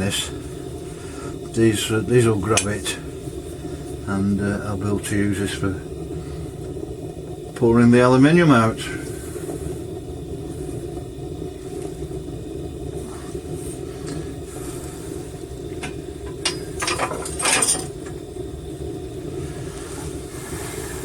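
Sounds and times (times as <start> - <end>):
furnace burner rushing: 0.0 - 21.0
metal clinking and clattering: 16.4 - 18.0.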